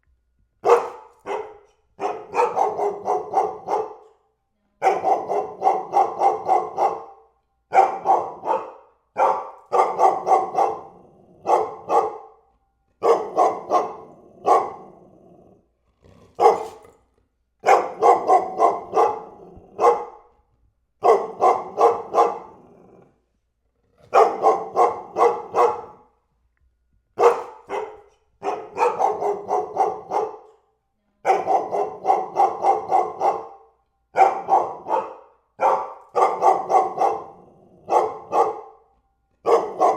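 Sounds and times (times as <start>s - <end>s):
dog barking: 0.6s - 15.0s, 16.4s - 17.0s, 17.6s - 20.4s, 21.0s - 22.9s, 24.1s - 26.2s, 27.2s - 39.9s.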